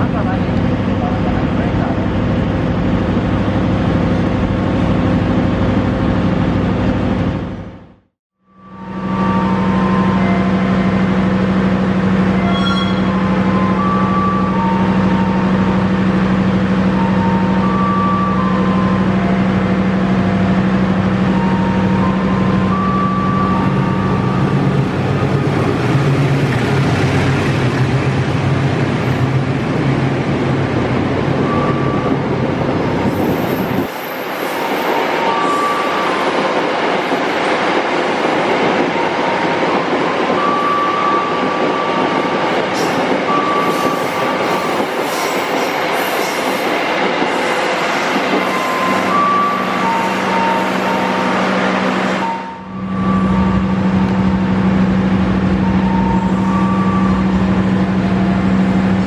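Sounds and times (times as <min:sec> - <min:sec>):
locomotive engine humming: 0:00.0 - 0:59.0
train wheels rumbling: 0:08.8 - 0:59.0
wheel squeals: 0:12.3 - 0:14.8.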